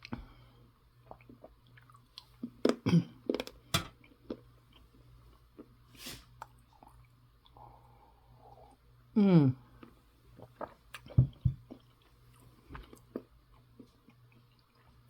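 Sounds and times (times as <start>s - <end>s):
person chewing food: 1.0s - 4.9s, 9.8s - 15.0s
sharp clicks and knocks: 3.4s - 3.9s.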